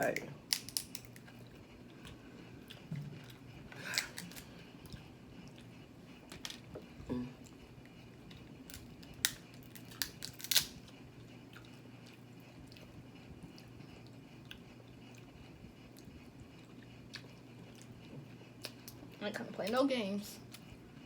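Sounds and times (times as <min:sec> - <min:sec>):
quiet eating sounds: 0:00.0 - 0:21.0
crab shell cracking: 0:00.4 - 0:01.3, 0:03.8 - 0:04.5, 0:08.7 - 0:10.8.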